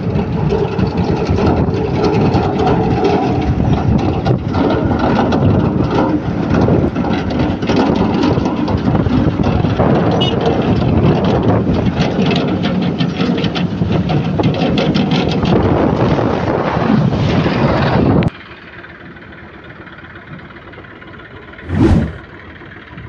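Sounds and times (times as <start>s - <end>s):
low hum: 21.7s - 22.2s.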